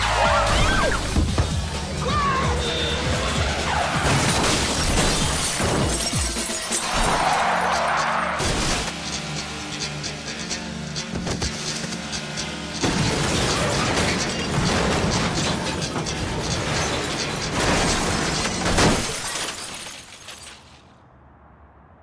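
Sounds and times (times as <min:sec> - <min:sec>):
car crash impact: 0:03.8 - 0:09.0, 0:12.8 - 0:20.8
glass shattering: 0:04.1 - 0:08.9, 0:12.9 - 0:20.8
metal crunching: 0:11.0 - 0:20.8.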